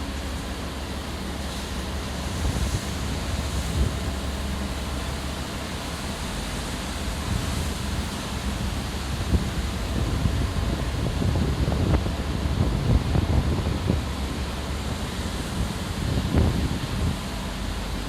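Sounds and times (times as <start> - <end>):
sea waves washing: 0.0 - 18.0
wind on microphone: 2.0 - 4.7, 7.0 - 18.0.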